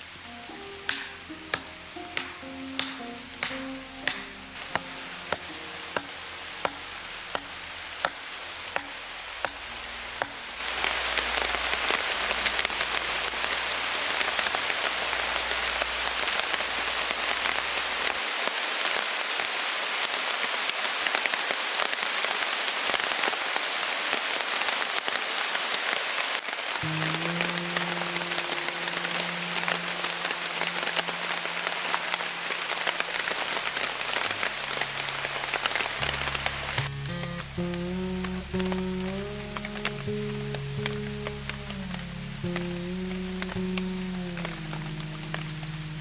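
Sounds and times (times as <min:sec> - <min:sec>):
soft music: 0:00.0 - 0:18.2, 0:26.8 - 0:46.0
heavy rain: 0:00.0 - 0:46.0
sharp knocks: 0:00.9 - 0:08.2.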